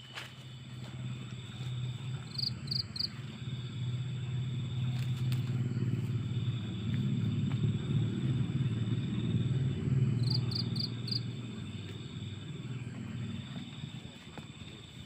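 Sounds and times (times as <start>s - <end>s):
night insects trilling: 0.0s - 15.0s
small engine running: 0.1s - 15.0s.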